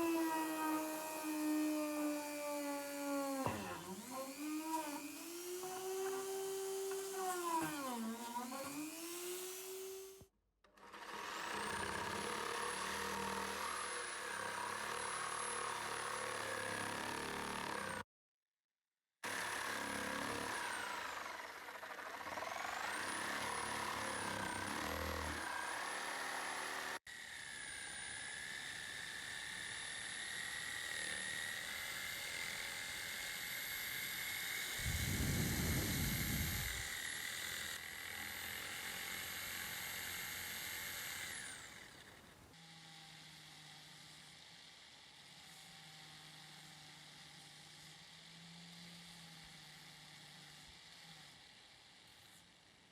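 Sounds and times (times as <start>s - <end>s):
power tool motor whining: 0.0s - 10.2s, 19.3s - 27.0s, 27.6s - 42.1s.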